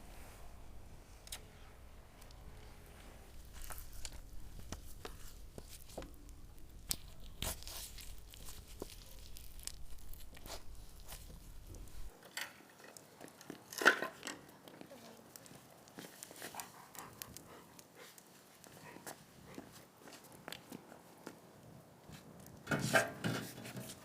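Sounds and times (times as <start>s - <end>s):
meat being skewered: 3.3s - 12.2s.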